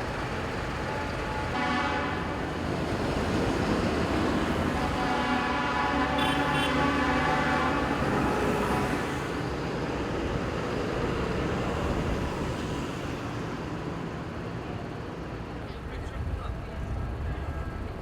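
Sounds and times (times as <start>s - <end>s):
engines idling: 0.0s - 6.9s
street noise: 0.0s - 18.0s
vehicle horn blast: 0.9s - 2.4s, 4.6s - 9.1s.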